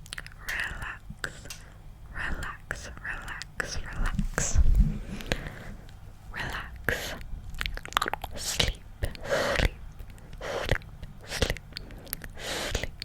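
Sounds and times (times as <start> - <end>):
wet mouth clicks and smacks: 0.0 - 0.7, 7.1 - 13.0.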